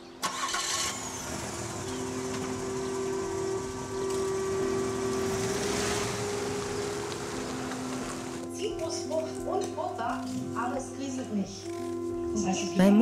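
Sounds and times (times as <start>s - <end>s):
car engine starting and running: 0.2s - 8.5s
background music: 2.6s - 13.0s.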